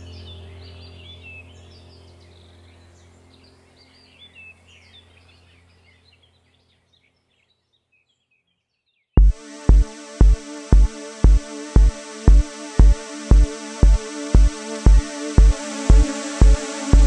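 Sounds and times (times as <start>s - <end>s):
low steady hum: 9.2s - 17.0s.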